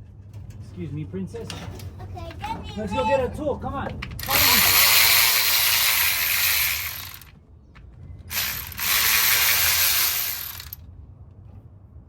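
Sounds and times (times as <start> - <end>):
cordless ratchet spinning: 4.2 - 7.3, 8.3 - 10.8.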